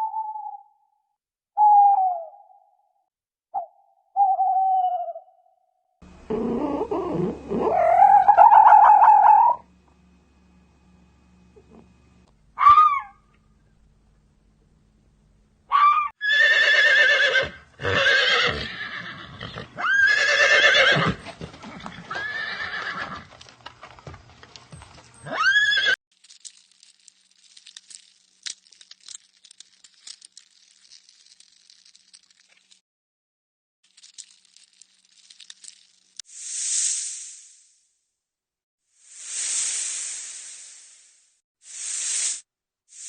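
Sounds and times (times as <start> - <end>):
farm animal calling: 6.3 - 9.6, 12.6 - 13.2
faint crackling rustles: 26.2 - 32.8, 33.9 - 36.2.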